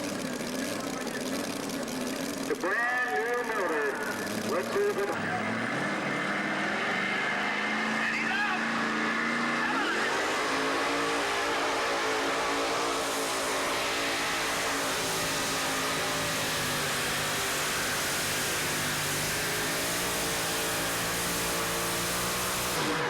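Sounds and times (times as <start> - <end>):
truck engine at high revs: 0.0 - 23.0.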